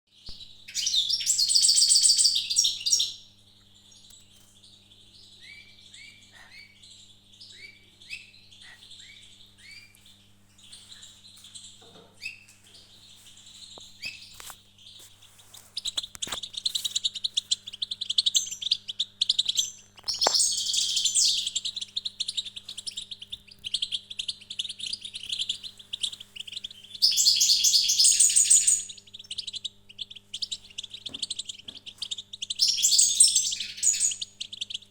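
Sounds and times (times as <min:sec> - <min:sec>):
songbirds trilling: 0:00.1 - 0:34.9
down-slurred bird chirps: 0:00.2 - 0:34.9.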